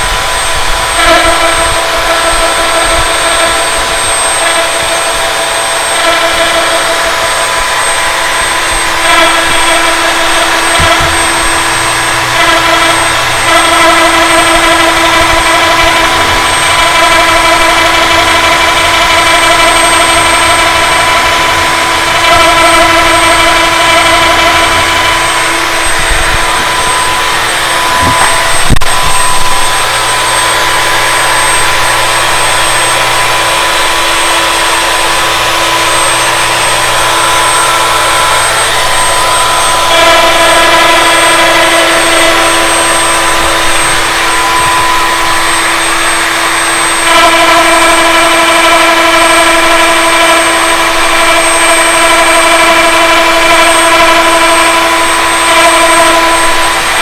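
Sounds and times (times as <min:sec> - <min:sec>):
wood router whining: 0:00.0 - 0:57.0.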